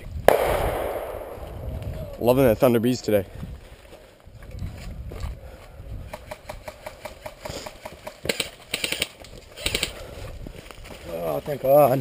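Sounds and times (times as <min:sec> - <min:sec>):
airsoft gun rattling bursts: 0:06.1 - 0:10.0
airsoft gun clicks: 0:08.2 - 0:10.0.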